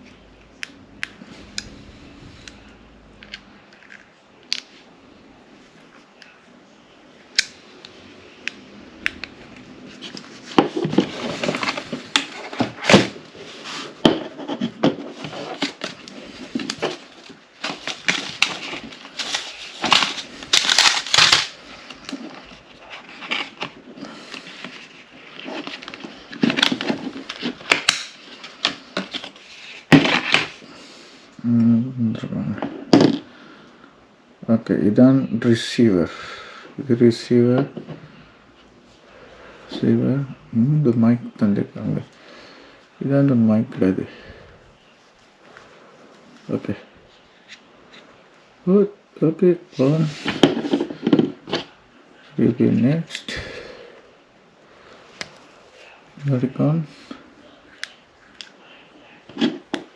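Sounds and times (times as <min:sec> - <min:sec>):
packaging rustling: 0:09.9 - 0:30.7
packaging clicking: 0:17.6 - 0:22.2.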